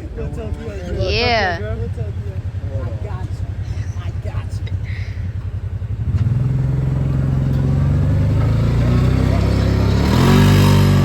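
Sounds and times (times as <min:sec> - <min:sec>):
vehicle engine revving: 0:00.0 - 0:11.0.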